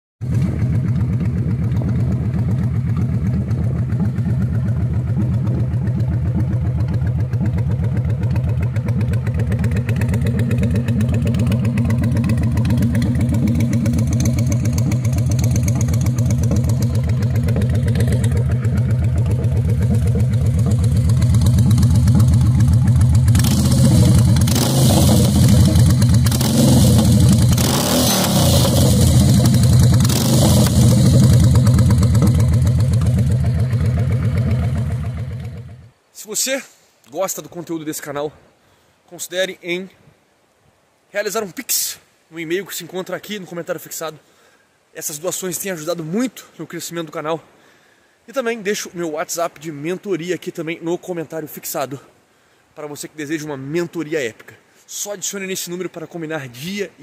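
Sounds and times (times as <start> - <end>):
motorcycle engine idling and revving: 0.2 - 36.1.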